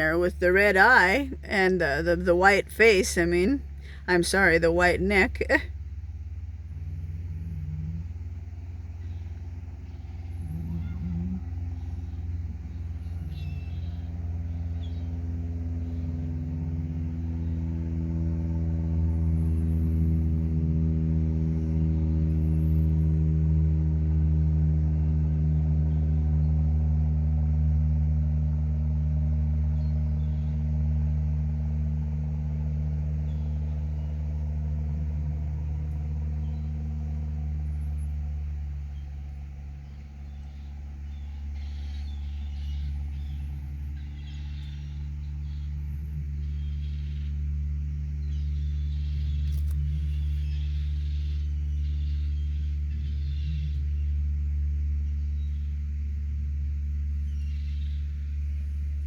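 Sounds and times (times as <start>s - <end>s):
low machine hum: 0.0s - 59.0s
faint bird calls: 6.6s - 16.3s, 36.0s - 59.0s.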